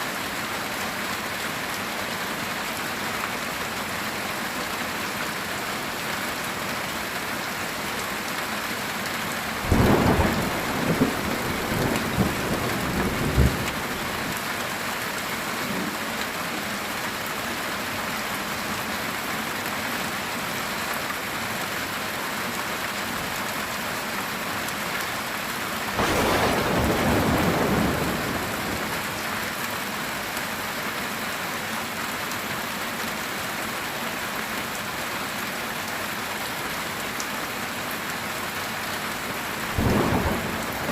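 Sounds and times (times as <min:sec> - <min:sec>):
heavy rain on a tin roof: 0:00.0 - 0:40.9
thunder crackling and rumbling: 0:09.6 - 0:14.4, 0:26.0 - 0:29.3, 0:39.7 - 0:40.9.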